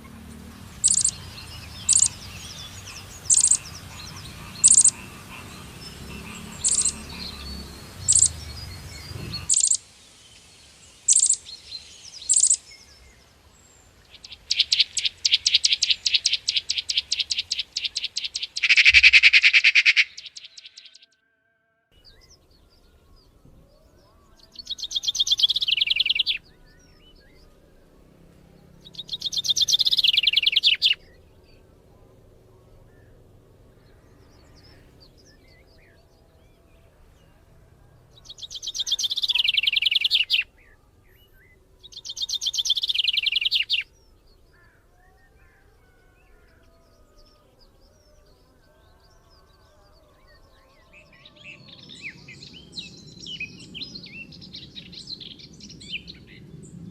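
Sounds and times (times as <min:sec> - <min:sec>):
faint bird calls: 0:00.0 - 0:09.8, 0:11.1 - 0:56.3
bird singing rapid trills: 0:00.0 - 0:21.2, 0:22.0 - 0:56.9.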